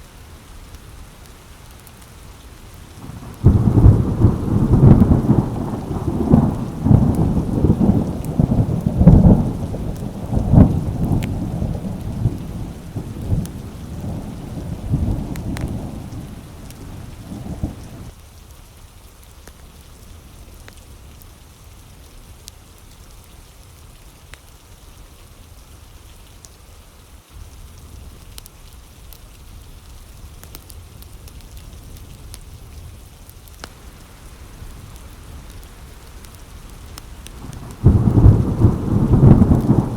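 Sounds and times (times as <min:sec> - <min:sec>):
rain pattering: 0:00.0 - 0:39.9
thunder rumbling: 0:03.0 - 0:18.1, 0:33.7 - 0:39.9.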